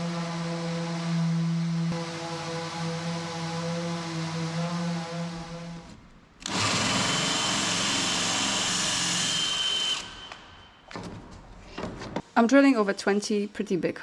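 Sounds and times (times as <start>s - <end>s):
power drill boring through fibreglass: 6.4s - 10.4s.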